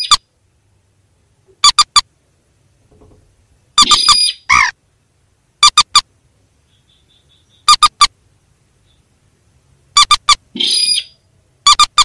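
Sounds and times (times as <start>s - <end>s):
bird squawking call: 0.0s - 0.3s, 3.8s - 4.8s, 6.7s - 8.1s, 10.0s - 12.0s.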